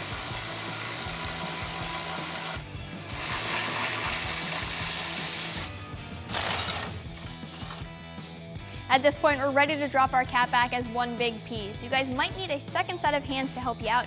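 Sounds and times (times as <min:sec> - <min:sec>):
electric ratchet whirring: 0:00.0 - 0:05.7, 0:06.3 - 0:07.9.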